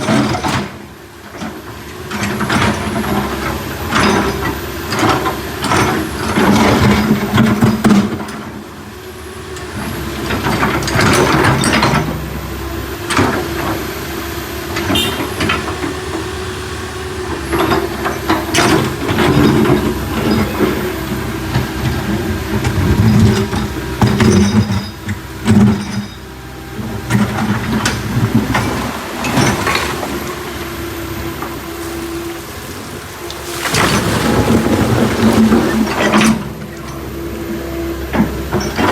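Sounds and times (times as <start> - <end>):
diesel engine under load: 0.0 - 38.9
bucket clanks and knocks: 27.0 - 37.2.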